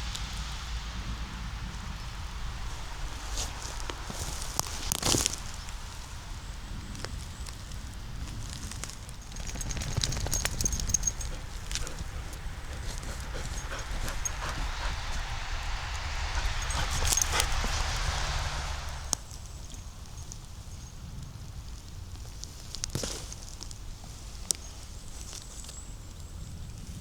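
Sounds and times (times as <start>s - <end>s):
footsteps through leaf litter: 2.7s - 9.0s
twigs snapping: 3.4s - 5.8s.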